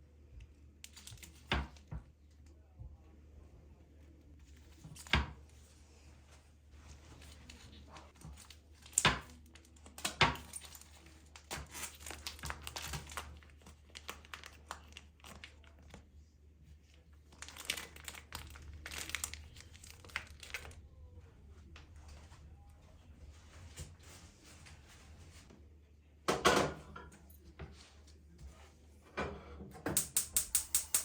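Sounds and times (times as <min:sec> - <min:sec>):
material crinkling and tearing: 0:07.1 - 0:21.0.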